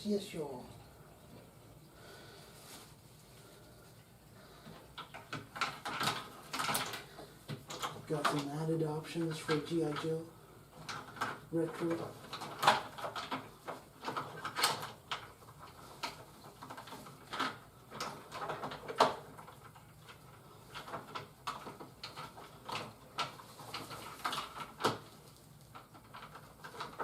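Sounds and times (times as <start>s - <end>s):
packaging rustling: 2.2s - 4.0s, 10.9s - 27.0s
plastic toy parts clicking: 5.0s - 8.5s.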